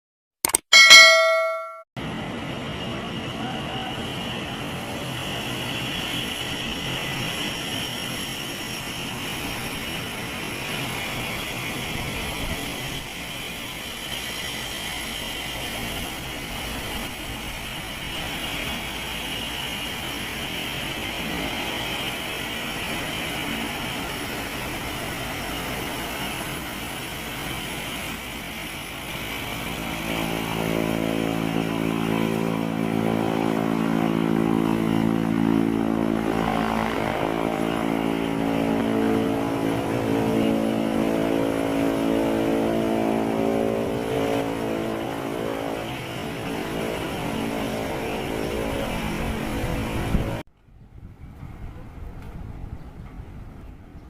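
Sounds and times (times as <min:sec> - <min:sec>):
engine rumble and hiss: 0:02.2 - 0:50.4
droning engine tone: 0:29.2 - 0:50.4.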